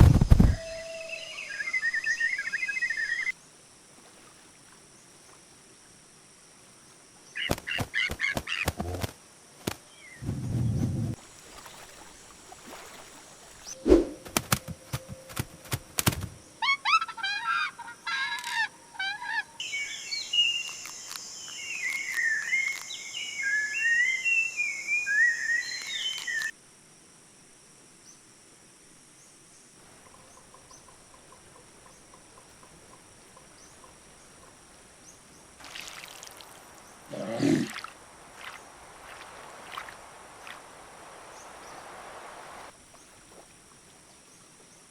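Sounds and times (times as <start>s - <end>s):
birds chirping and warbling: 0.4s - 3.3s, 16.9s - 26.5s
sharp clicks or flaps: 13.9s - 16.4s.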